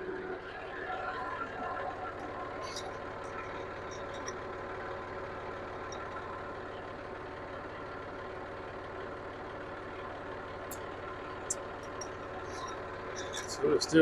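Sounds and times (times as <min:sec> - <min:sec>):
tractor diesel engine idling: 0:00.0 - 0:14.0.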